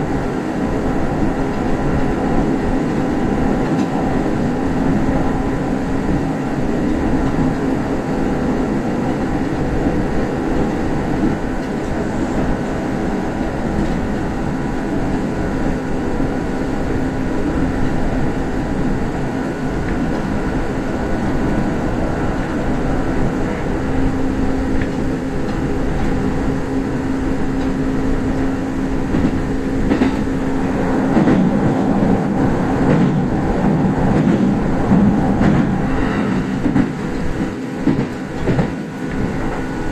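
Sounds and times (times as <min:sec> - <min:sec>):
train motor hum: 0:00.0 - 0:39.9
train wheels rumbling on rail: 0:00.0 - 0:39.9
rail-joint clicks: 0:02.8 - 0:04.3, 0:10.5 - 0:15.3, 0:22.3 - 0:39.9.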